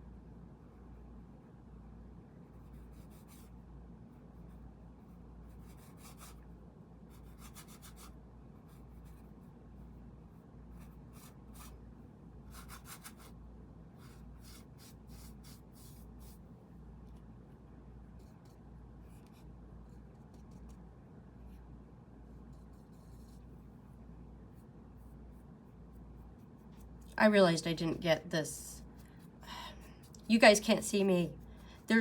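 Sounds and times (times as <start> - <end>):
faint low hum: 0.0 - 32.0
paintbrush scraping canvas: 12.5 - 16.5, 22.3 - 27.1.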